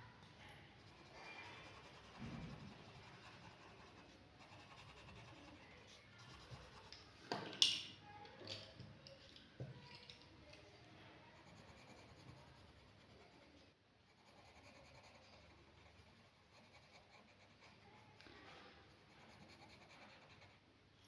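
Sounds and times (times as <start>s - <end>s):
pen scratching on paper: 0.8s - 6.9s, 11.4s - 13.5s, 14.1s - 18.0s, 19.1s - 20.6s.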